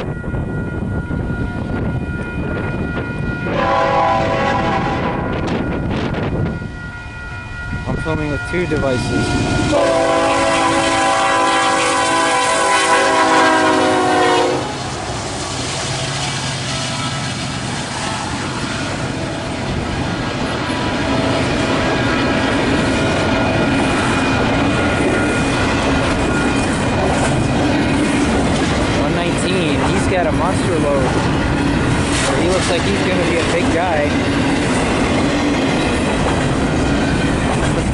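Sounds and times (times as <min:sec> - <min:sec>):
freight train running past: 0:00.0 - 0:37.9
locomotive air horn: 0:03.4 - 0:05.4, 0:09.3 - 0:19.0.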